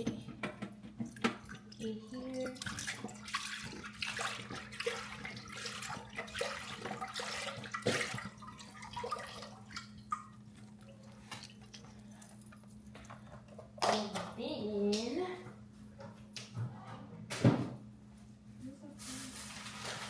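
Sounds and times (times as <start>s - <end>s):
broth pouring and splashing into pot: 1.5s - 11.6s.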